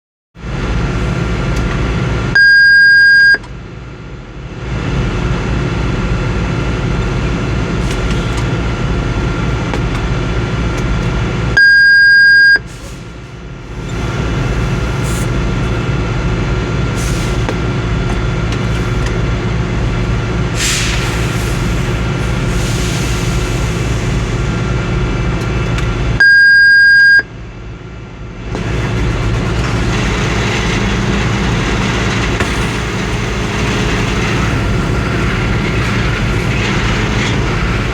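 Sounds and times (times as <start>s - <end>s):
truck engine running: 0.4s - 2.5s, 3.4s - 11.6s, 12.5s - 26.3s, 27.3s - 37.9s
high-pitched warning beeps: 2.4s - 3.4s, 11.6s - 12.7s, 26.2s - 27.3s.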